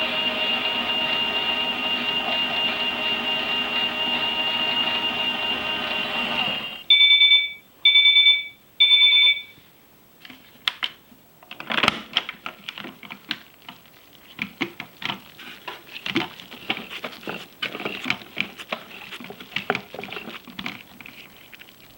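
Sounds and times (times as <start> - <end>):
toy washing machine beeping: 0.0 - 9.6.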